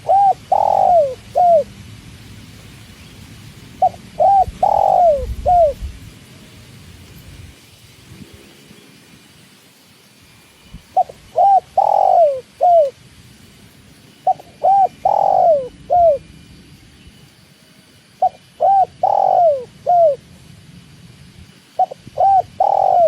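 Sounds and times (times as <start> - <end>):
dove cooing: 0.0 - 1.7, 3.8 - 5.9, 11.0 - 13.0, 14.2 - 16.3, 18.2 - 20.3, 21.8 - 23.0.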